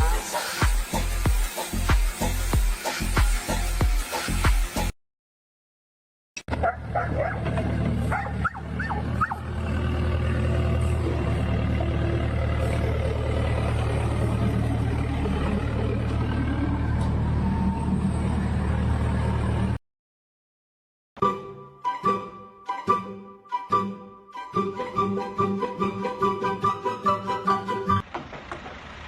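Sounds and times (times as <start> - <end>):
dog yelping: 6.6 - 7.4, 8.1 - 9.5.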